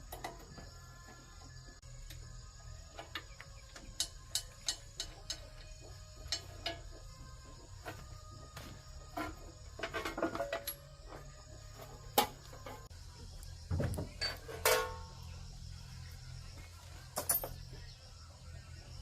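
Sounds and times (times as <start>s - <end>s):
quiet background music: 0.0s - 19.0s
metal tools clinking: 9.2s - 10.9s, 14.2s - 15.2s, 17.2s - 17.7s.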